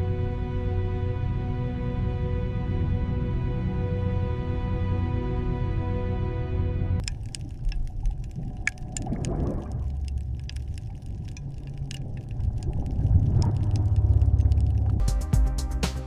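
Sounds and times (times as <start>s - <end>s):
low mechanical rumble: 7.9s - 15.0s.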